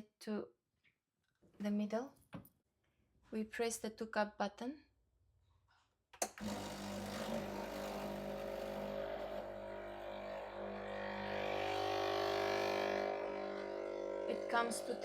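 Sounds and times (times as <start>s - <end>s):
espresso machine pump humming: 6.3s - 15.0s.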